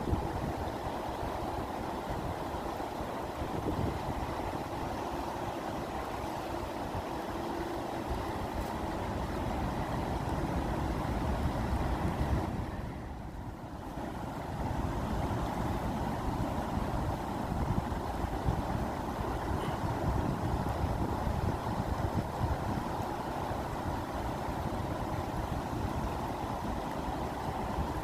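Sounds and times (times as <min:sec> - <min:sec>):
rushing water: 0:00.0 - 0:28.0.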